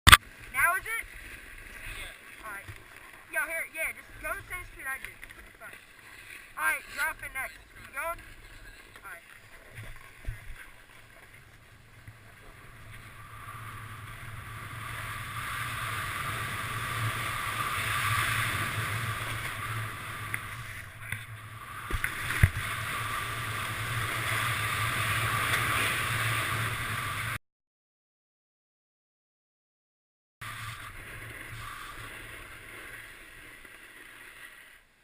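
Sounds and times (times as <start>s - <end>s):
snowboard scraping over snow: 9.7s - 27.4s, 30.4s - 35.0s
wind rumbling on camera: 9.7s - 27.4s.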